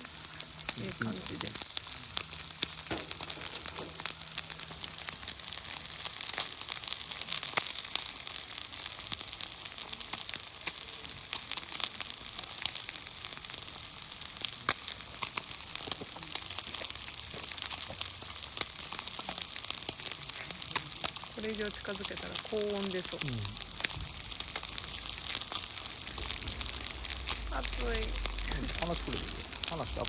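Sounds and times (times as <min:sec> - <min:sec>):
fat crackling and popping: 0:00.0 - 0:30.0
meat sizzling on a griddle: 0:00.0 - 0:30.0.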